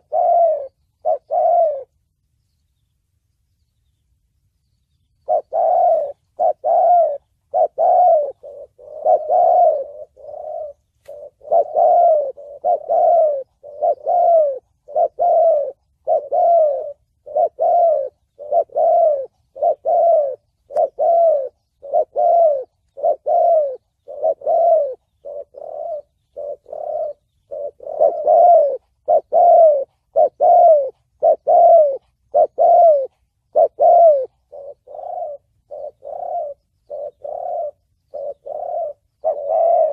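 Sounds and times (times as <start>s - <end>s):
dove cooing: 0.0s - 2.2s, 5.2s - 39.9s.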